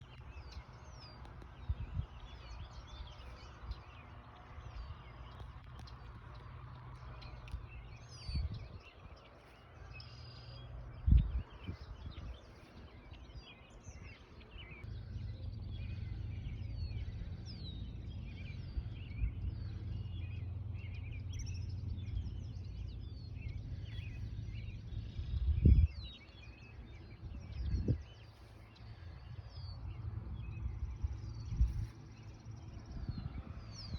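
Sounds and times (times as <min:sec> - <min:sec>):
birds chirping and singing: 0:00.0 - 0:33.9
low rumble: 0:00.0 - 0:33.9.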